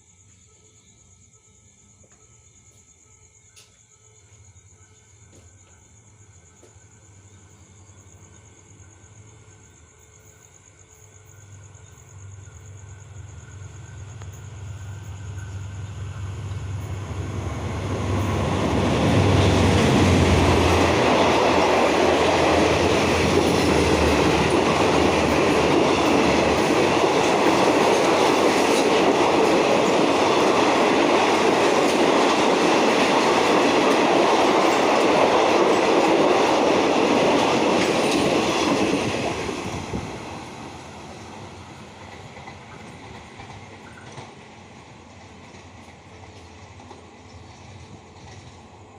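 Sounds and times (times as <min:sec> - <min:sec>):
train engine drone: 0:06.6 - 0:48.9
train wheels clattering on rails: 0:13.4 - 0:48.9.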